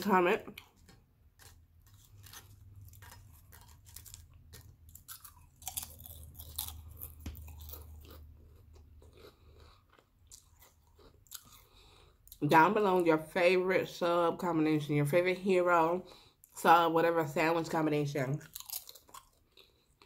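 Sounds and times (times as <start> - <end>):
crunching potato chips: 0.4 - 12.4, 18.4 - 20.0.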